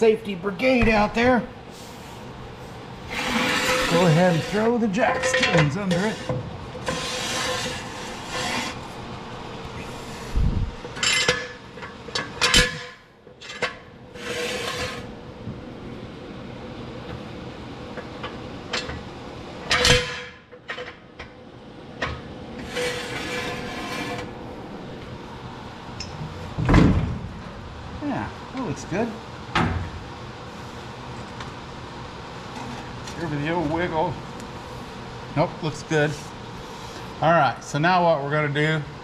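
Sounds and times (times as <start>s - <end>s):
metal jack stands scraping: 3.0s - 8.8s, 22.6s - 24.3s.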